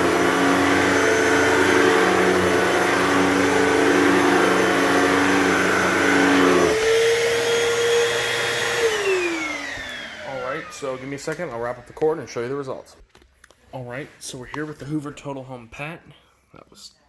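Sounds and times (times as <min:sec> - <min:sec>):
upright vacuum running: 0:00.0 - 0:12.6.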